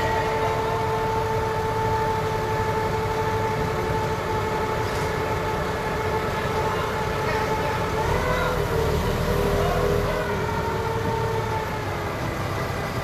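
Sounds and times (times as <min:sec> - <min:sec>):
forklift engine rumble: 0:00.0 - 0:13.0
forklift whine: 0:00.0 - 0:13.0.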